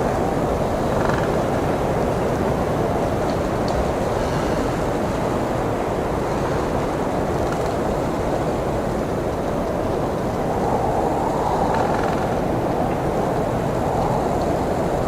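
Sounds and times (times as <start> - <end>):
blizzard wind blowing: 0.0 - 15.0.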